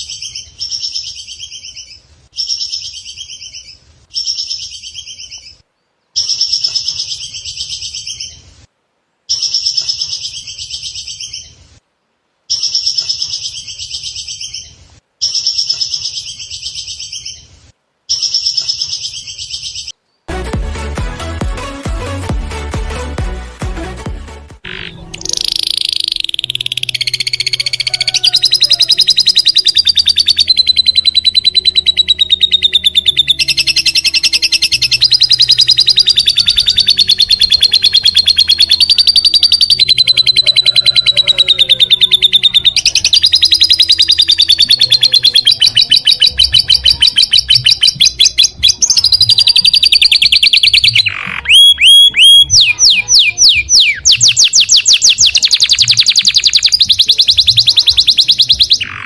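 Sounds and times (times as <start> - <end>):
bird singing buzzing trills: 24.7 - 59.0
downward-sweeping bird whistles: 25.2 - 59.0.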